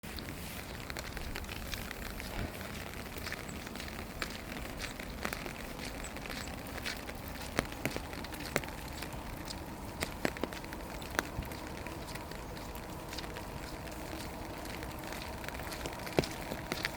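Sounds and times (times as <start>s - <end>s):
heavier raindrops tapping: 0.0s - 16.9s
light rain hissing: 4.8s - 16.9s.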